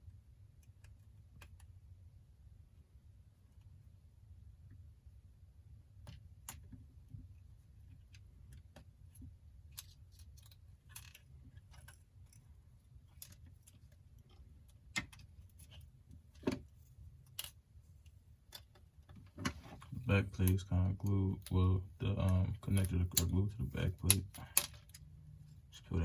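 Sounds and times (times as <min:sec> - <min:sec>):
small repair tools clicking and tapping: 0:22.2 - 0:25.1.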